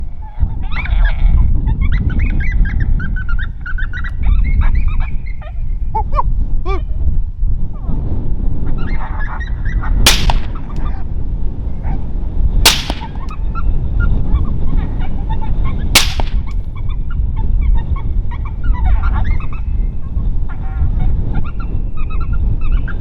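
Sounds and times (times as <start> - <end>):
wind rumble on microphone: 0.0 - 23.0
rifle shots: 10.1 - 10.8, 12.7 - 13.3, 16.0 - 16.5.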